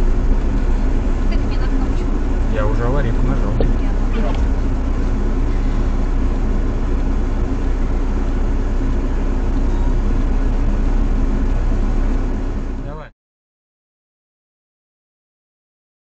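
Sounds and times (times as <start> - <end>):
car engine and tyre rumble: 0.0 - 13.1.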